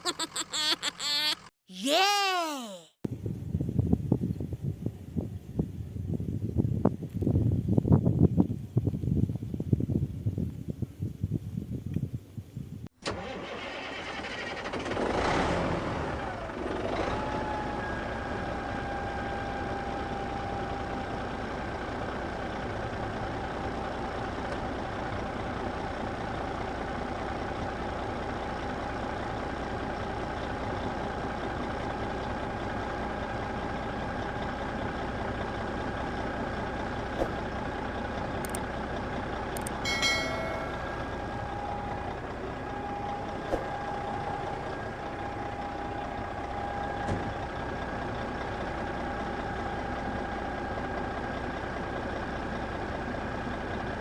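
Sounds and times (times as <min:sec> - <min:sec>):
sharp clicks: 0:38.4 - 0:38.6
brief higher tone: 0:39.8 - 0:41.5.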